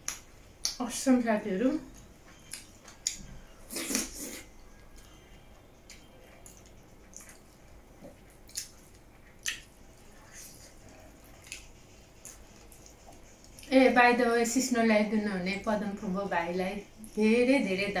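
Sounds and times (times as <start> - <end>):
wet mouth clicks and smacks: 0.0 - 0.8, 5.9 - 10.4, 11.4 - 13.7
person chewing food: 1.9 - 13.7.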